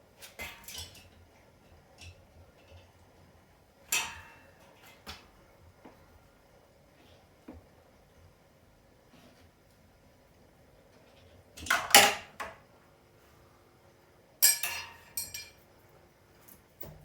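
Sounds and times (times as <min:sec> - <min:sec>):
metal tools clattering: 0:14.4 - 0:15.6.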